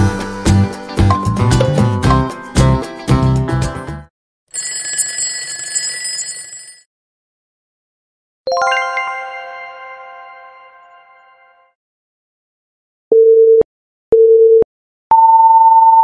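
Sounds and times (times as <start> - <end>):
background music: 0.0 - 4.1, 8.5 - 11.7
bell ringing rapidly: 4.6 - 6.8
bright chime: 8.5 - 11.7.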